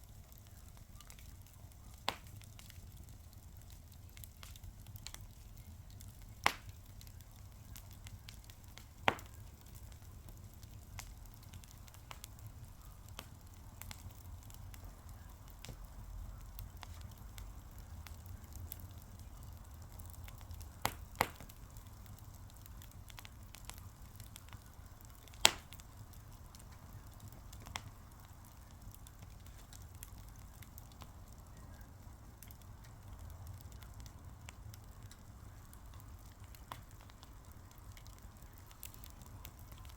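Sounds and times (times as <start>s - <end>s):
fire crackling: 0.0s - 39.9s
sharp fire pops: 0.3s - 39.9s.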